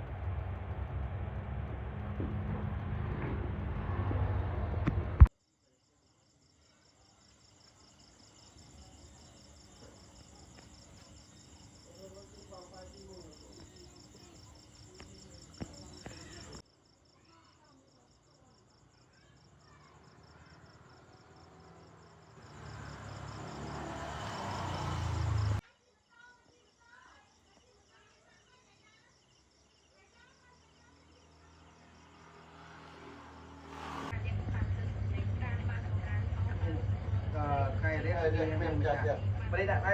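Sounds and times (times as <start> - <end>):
faint low hum: 0.0 - 5.3, 34.2 - 39.9
loud rumbling noise: 0.0 - 5.3, 34.1 - 39.9
crickets trilling: 6.0 - 17.2, 18.0 - 25.6.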